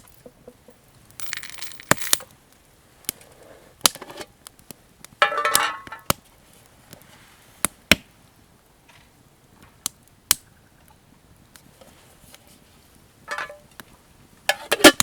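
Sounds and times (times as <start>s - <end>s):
clattering rattle with metallic ringing: 1.2s - 2.3s, 13.3s - 13.6s.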